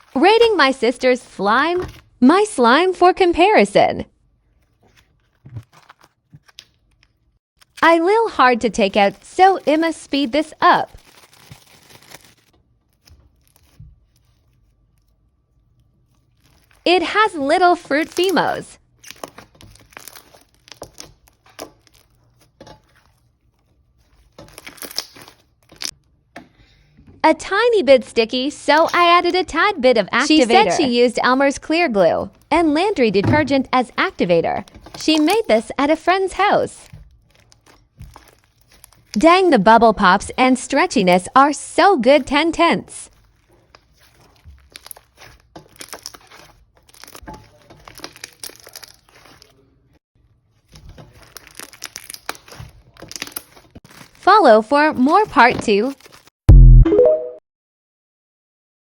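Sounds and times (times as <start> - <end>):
slime squished by hand: 18.0 - 23.2, 36.9 - 39.2, 43.1 - 49.5, 50.7 - 54.2.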